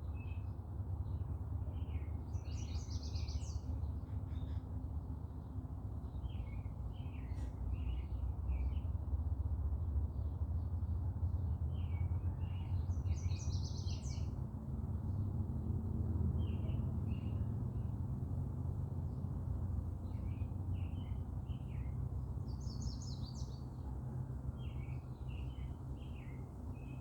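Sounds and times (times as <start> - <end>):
small birds chirping: 1.8 - 4.6, 11.7 - 14.4, 20.0 - 23.9.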